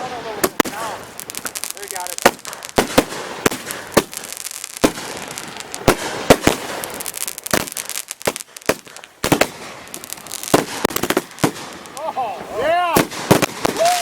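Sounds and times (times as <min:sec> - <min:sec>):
fireworks bangs: 0:00.0 - 0:14.0
fireworks crackling hiss: 0:00.0 - 0:14.0.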